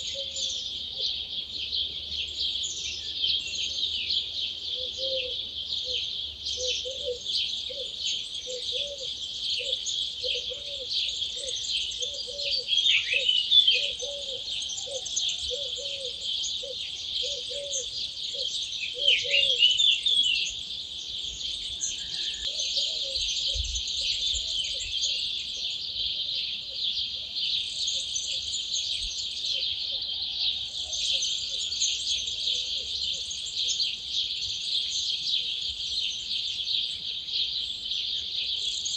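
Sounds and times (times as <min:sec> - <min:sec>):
louder bird song phrases: 0:00.0 - 0:38.9
songbirds chorus: 0:00.0 - 0:38.9
lower repeating bird call: 0:04.8 - 0:20.6.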